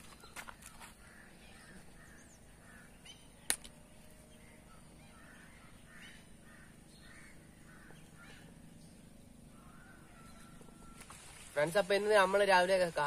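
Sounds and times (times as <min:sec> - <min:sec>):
faint bird calls: 0:00.0 - 0:11.6
sharp click: 0:03.4 - 0:03.8.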